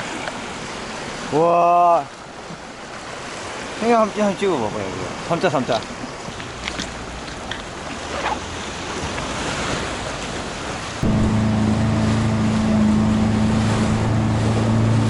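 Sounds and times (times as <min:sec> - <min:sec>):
sea surf over rocks: 0:00.0 - 0:15.0
wind: 0:00.0 - 0:15.0
loud steady low hum: 0:11.0 - 0:15.0.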